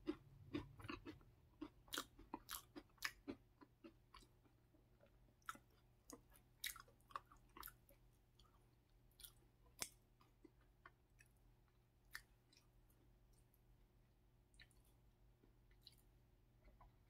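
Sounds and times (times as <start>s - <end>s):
chewing crackers: 0.0s - 13.6s.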